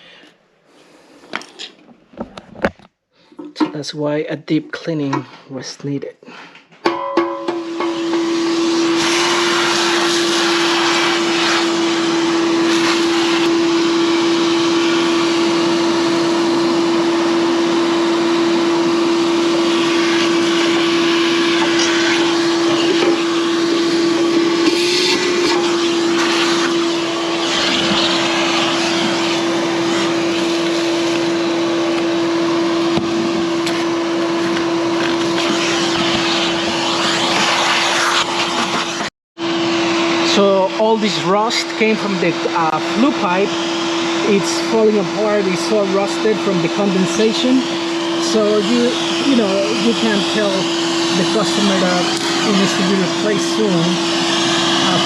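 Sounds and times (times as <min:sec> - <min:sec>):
vacuum cleaner running: 0:07.0 - 0:55.0.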